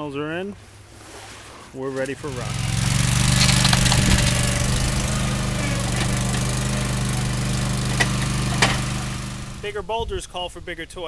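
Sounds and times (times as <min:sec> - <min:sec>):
loader engine running: 0:02.0 - 0:09.8
faint knocks: 0:02.5 - 0:09.6.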